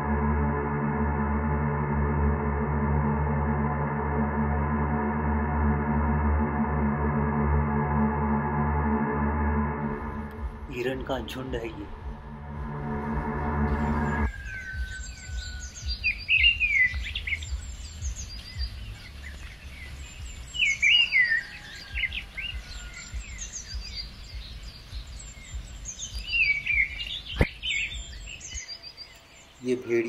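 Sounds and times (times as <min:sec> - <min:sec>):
low rumble: 0:00.0 - 0:20.5
bird whistling falling notes: 0:13.7 - 0:17.4
high bird chirps: 0:13.7 - 0:30.0.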